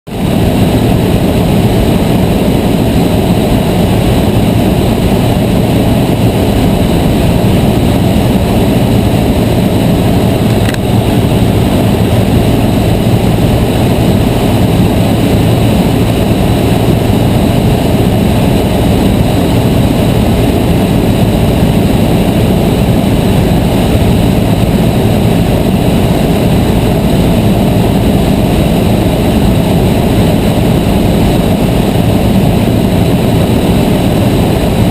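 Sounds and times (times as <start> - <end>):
light aircraft engine droning: 0.1 - 34.9.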